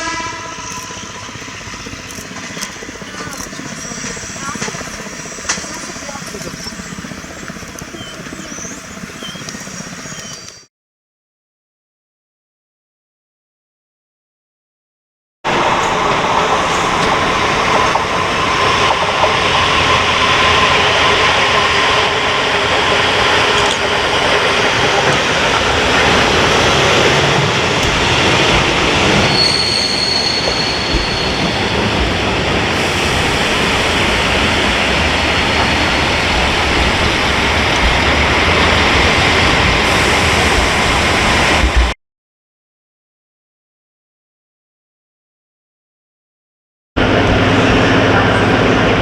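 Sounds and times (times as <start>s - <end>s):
train rolling on rails: 0.0s - 10.7s, 15.5s - 42.0s, 47.0s - 49.0s
high wheel squeal: 15.5s - 40.8s.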